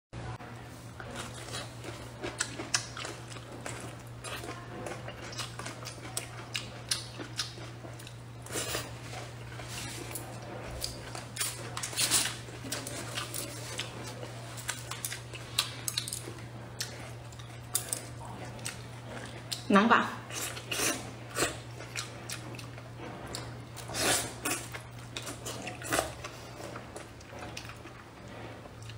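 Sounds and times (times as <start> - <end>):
steady low hum: 0.2 - 28.9
wet chewing and mouth smacks: 1.0 - 8.4, 9.1 - 19.7.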